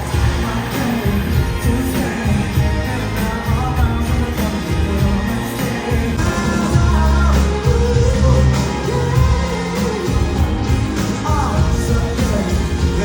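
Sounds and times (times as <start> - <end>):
live indie band: 0.0 - 13.0
person singing: 0.0 - 13.0.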